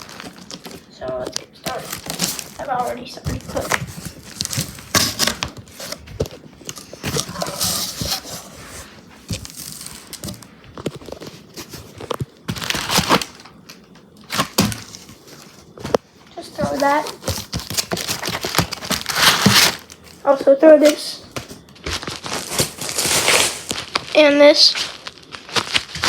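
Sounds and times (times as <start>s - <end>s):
packaging being torn and crumpled: 0.0s - 6.0s, 9.4s - 15.2s, 16.8s - 20.2s, 21.8s - 26.0s.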